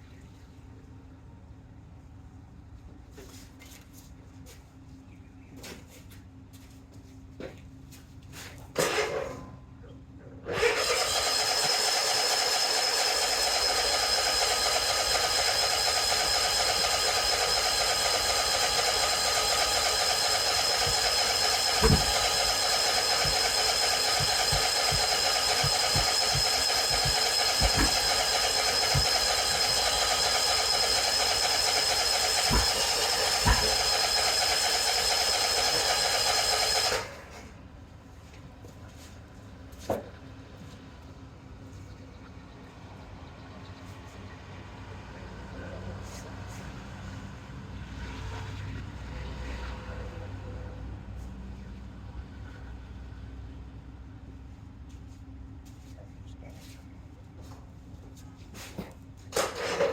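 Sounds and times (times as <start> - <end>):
electric starter cranking: 10.5 - 37.3.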